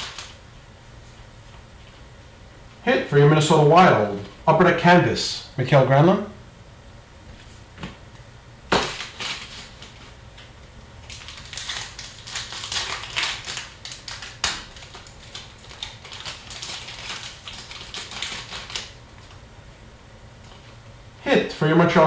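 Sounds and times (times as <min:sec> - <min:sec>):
card wrappers crackling: 0:00.0 - 0:00.4, 0:08.7 - 0:19.4.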